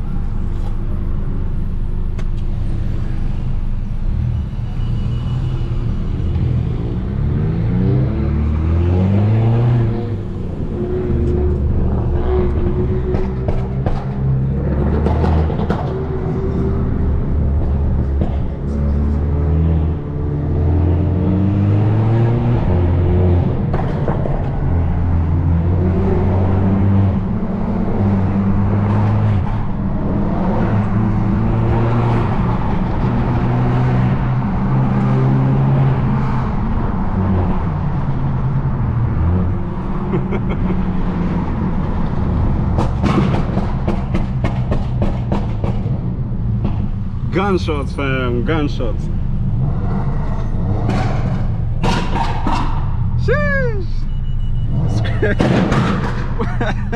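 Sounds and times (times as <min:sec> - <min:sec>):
car engine and road noise: 0:00.0 - 0:56.9
sharp exhaust pops: 0:50.8 - 0:53.1.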